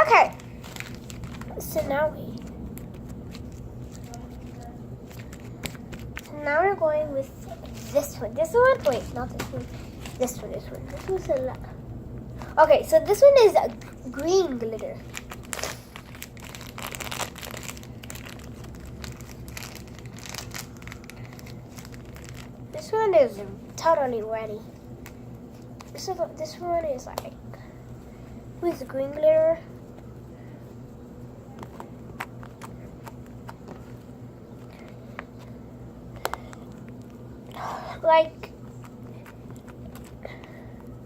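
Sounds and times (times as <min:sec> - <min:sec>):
slime crackling and squelching: 0:00.0 - 0:11.8, 0:12.4 - 0:23.8
steady low hum: 0:00.0 - 0:41.0.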